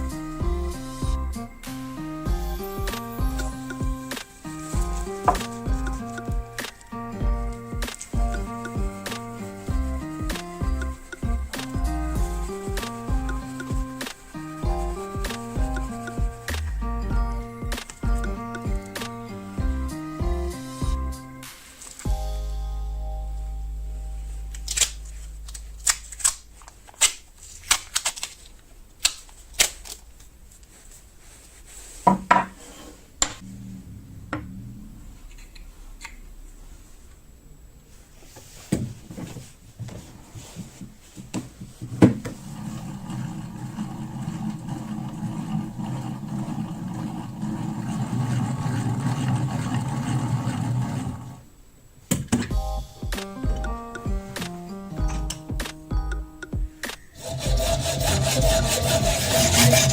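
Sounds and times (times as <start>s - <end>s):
steady rough grinding noise: 42.4s - 51.5s, 57.2s - 59.9s.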